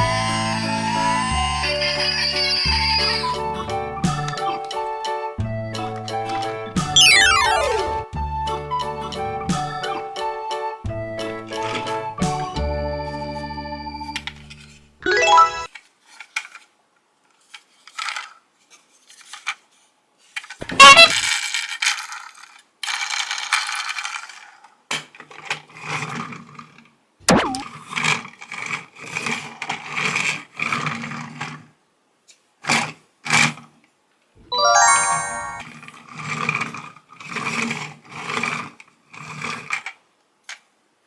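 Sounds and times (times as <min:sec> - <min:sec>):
plastic toys clattering: 0:15.7 - 0:16.7, 0:17.3 - 0:26.8, 0:36.2 - 0:40.6.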